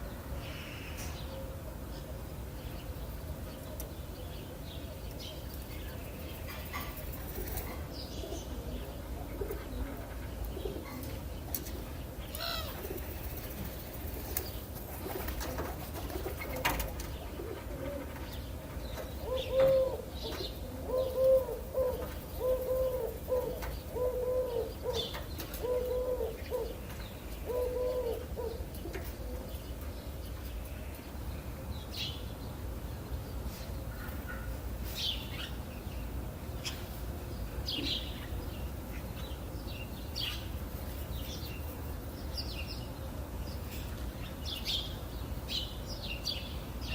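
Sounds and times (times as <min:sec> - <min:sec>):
dove cooing: 0:06.6 - 0:11.2, 0:15.0 - 0:18.3, 0:19.2 - 0:26.8, 0:27.4 - 0:29.6.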